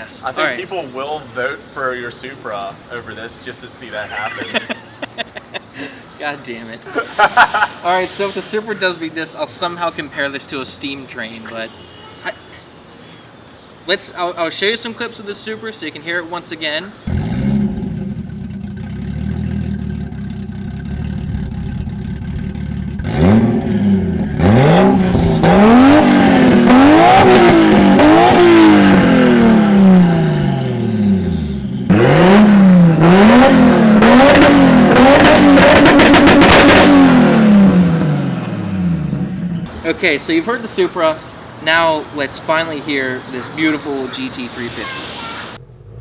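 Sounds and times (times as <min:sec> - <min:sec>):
car exhaust idling and revving: 0:17.0 - 0:39.9
exhaust pops: 0:30.9 - 0:39.9.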